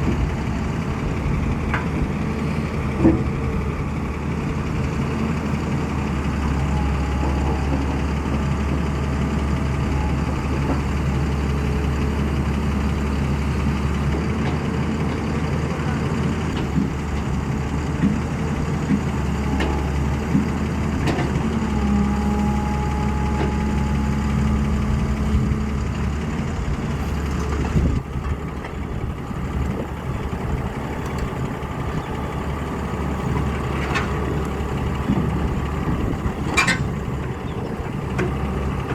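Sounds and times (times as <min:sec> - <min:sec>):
excavator diesel engine running: 0:00.0 - 0:38.9
metallic clanks: 0:35.9 - 0:37.6.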